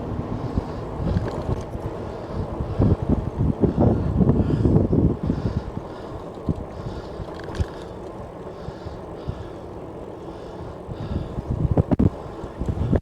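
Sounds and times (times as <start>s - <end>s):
wind on microphone: 0.0s - 7.9s, 10.9s - 13.0s
bike tyre noise on road: 0.0s - 13.0s.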